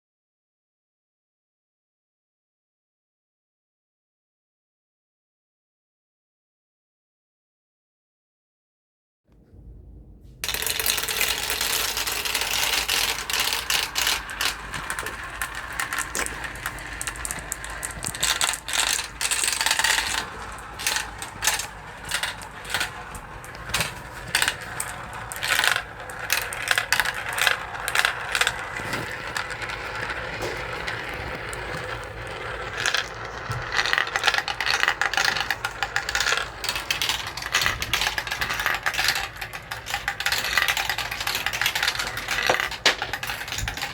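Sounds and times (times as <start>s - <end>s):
marbles rattling down a marble run: 10.4s - 43.9s.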